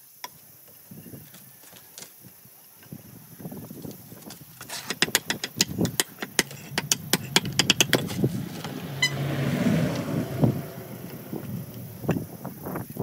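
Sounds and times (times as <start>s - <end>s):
hard objects clicking and knocking: 4.6s - 8.8s.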